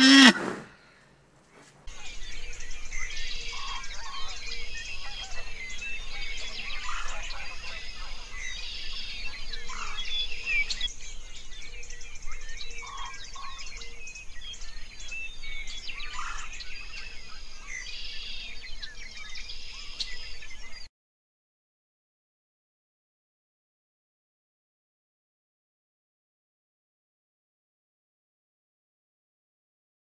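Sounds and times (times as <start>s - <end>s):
chorus of small birds chirping: 1.9s - 20.9s.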